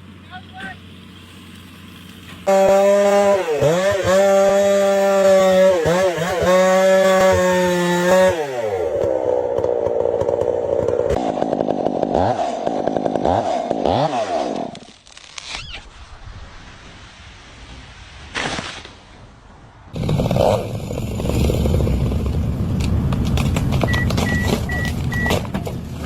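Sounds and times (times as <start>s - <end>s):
chainsaw running: 1.3s - 15.0s, 20.0s - 25.3s.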